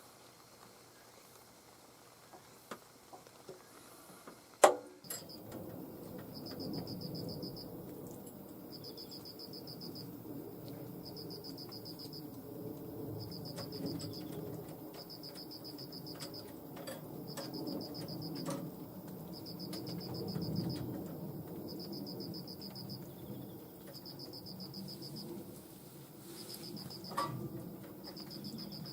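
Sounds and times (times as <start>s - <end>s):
scattered clicks: 5.1s - 23.2s
cricket chirping: 5.1s - 25.6s, 26.3s - 28.9s
low background rumble: 5.1s - 28.9s.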